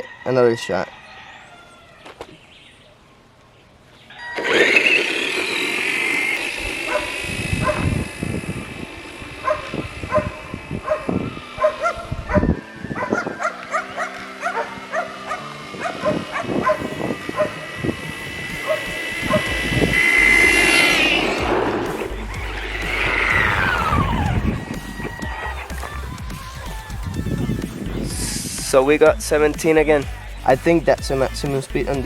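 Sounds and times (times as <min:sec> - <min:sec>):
electric motor whine: 0:04.1 - 0:28.6.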